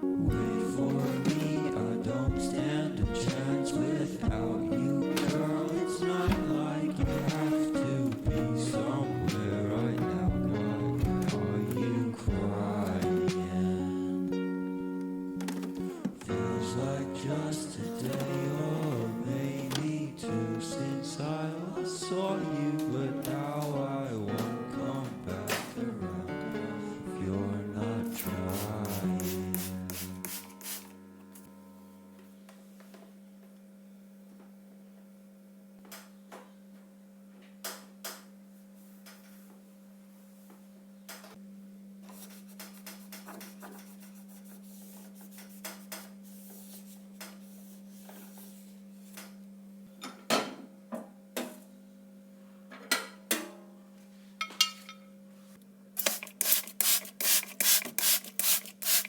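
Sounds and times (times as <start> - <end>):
wiping and scrubbing: 42.1 - 48.8.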